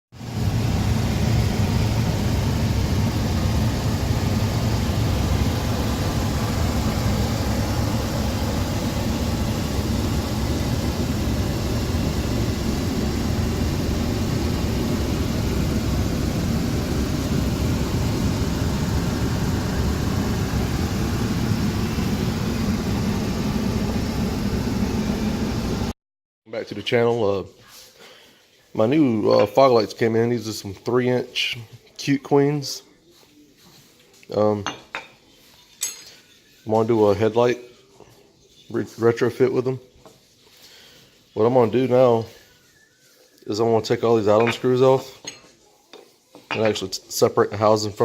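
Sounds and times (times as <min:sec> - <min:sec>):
low mechanical rumble: 0:00.2 - 0:26.0.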